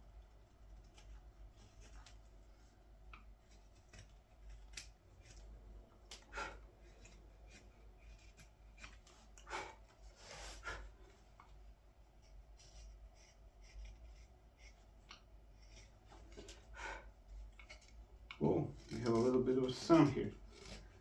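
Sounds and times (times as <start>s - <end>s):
knife cutting green wood: 3.2s - 10.4s.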